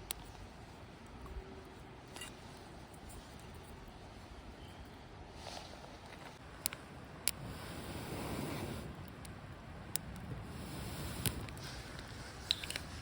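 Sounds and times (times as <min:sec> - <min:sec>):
campfire burning: 0:05.5 - 0:13.0
fire crackles and pops: 0:06.3 - 0:13.0.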